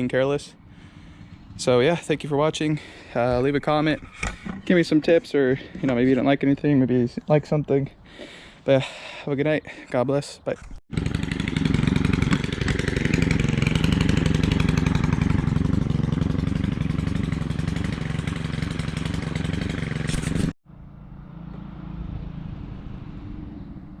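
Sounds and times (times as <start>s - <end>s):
small two-stroke engine idling: 0.6s - 1.6s, 10.9s - 20.5s.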